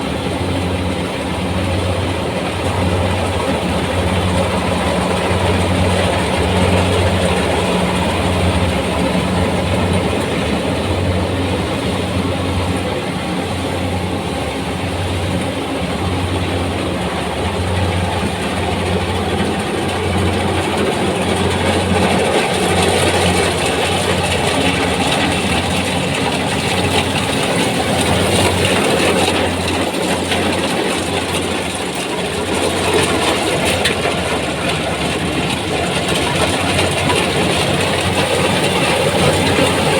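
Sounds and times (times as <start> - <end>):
combine harvester engine hum: 0.0 - 39.9
threshing machinery clatter: 17.8 - 39.9.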